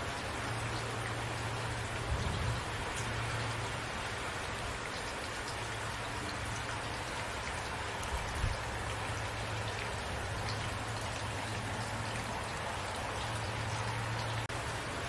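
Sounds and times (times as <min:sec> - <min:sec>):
raindrops ticking: 0:00.0 - 0:15.0
steady rain falling: 0:00.0 - 0:15.0.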